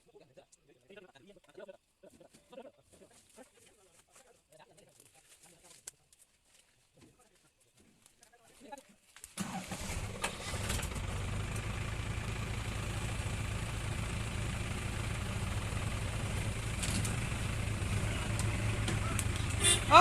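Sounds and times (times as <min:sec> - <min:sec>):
vehicle engine running: 0:09.5 - 0:20.0.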